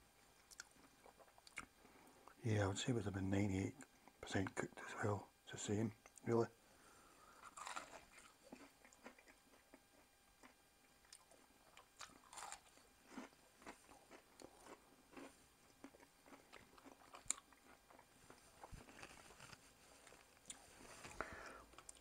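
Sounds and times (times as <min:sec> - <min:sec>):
person chewing crunchy food: 0:00.4 - 0:01.8, 0:07.3 - 0:22.0.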